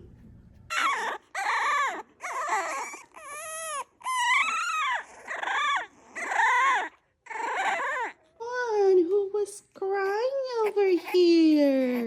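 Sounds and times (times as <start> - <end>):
puppy whining: 0.5 - 8.5.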